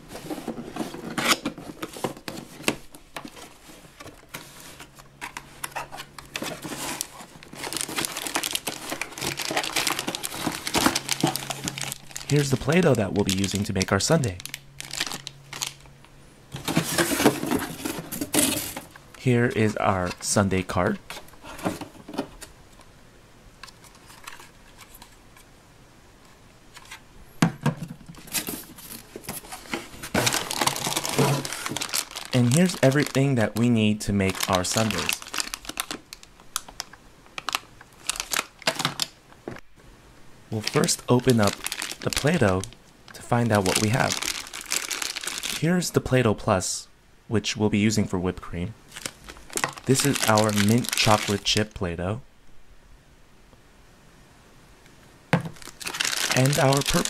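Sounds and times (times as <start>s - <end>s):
cardboard rubbing and scraping: 0.0s - 11.9s
plastic wrapping crinkling: 0.0s - 15.9s, 16.5s - 20.4s, 28.1s - 39.6s, 40.5s - 45.8s, 48.9s - 51.7s, 55.4s - 57.0s.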